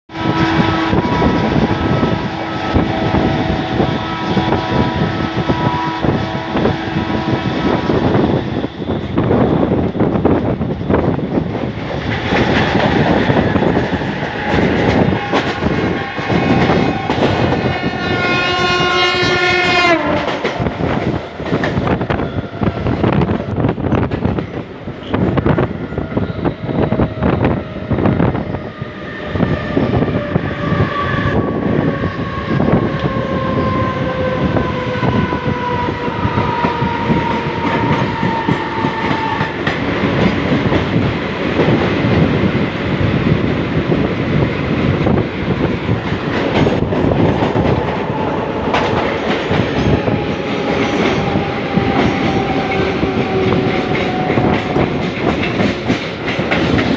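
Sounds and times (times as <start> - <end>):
train horn: 0.1 - 8.2, 13.3 - 21.0, 29.3 - 39.8, 47.9 - 55.5
train wheels clattering over rail joints: 9.8 - 18.2, 44.8 - 56.9.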